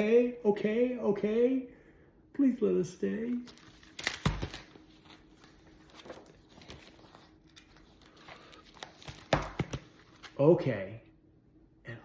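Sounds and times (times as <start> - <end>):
faint steady hum: 0.0 - 12.0
picture book rustling and tapping: 3.4 - 10.4.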